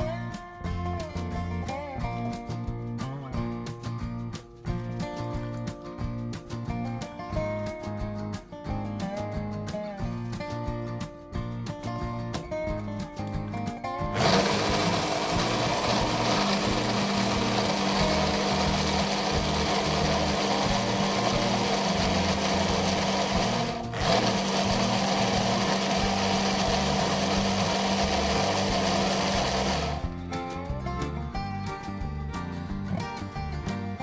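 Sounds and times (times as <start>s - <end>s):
electric blender running: 14.1s - 30.1s.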